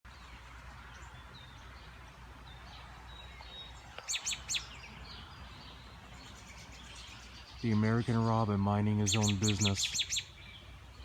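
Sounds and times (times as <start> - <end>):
distant bird chirps: 0.1 - 11.0
loud sharp bird chirps: 3.2 - 8.2, 9.0 - 11.0.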